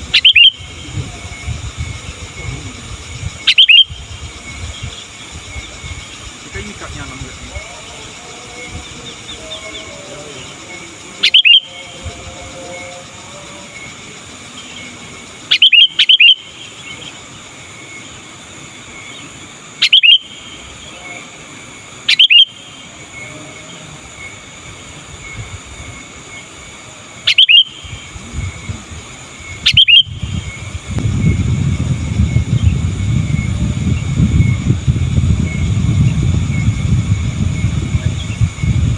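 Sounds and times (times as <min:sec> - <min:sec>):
bulbul calling: 0:00.0 - 0:18.2, 0:18.8 - 0:24.6, 0:25.2 - 0:38.9
low rumble: 0:30.1 - 0:38.9.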